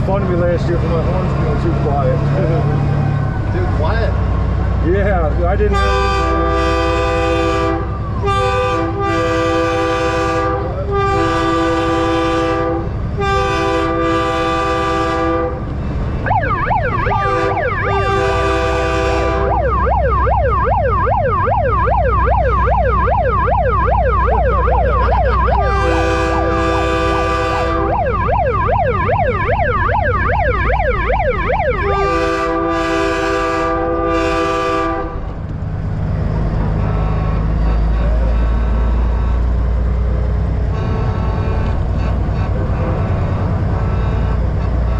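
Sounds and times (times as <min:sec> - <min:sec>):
diesel trucks rumbling: 0:00.0 - 0:44.9
truck air horn blasts: 0:05.6 - 0:16.3, 0:17.0 - 0:19.6, 0:25.0 - 0:28.0, 0:31.8 - 0:35.3, 0:36.6 - 0:39.7, 0:40.6 - 0:44.9
siren yelp: 0:16.2 - 0:33.3.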